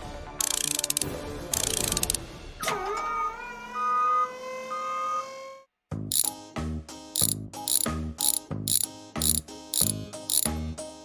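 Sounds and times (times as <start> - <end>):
upbeat background music: 0.0 - 2.6, 6.0 - 11.0.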